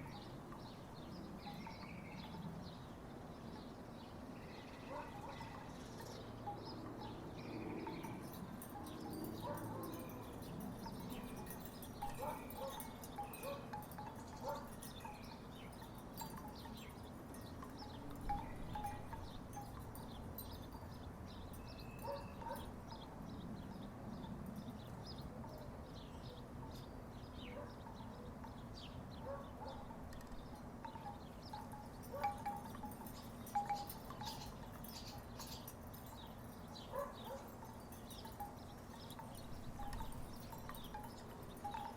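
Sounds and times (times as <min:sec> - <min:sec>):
wooden wind chimes clonking: 0:05.2 - 0:22.8, 0:29.9 - 0:41.9.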